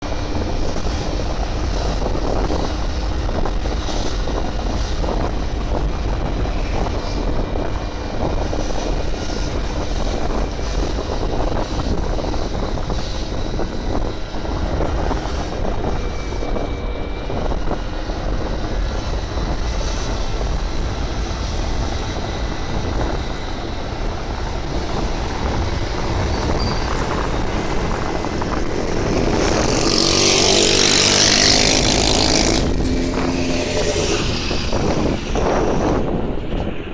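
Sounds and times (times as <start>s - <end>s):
wind rushing across microphone: 0.0s - 36.9s.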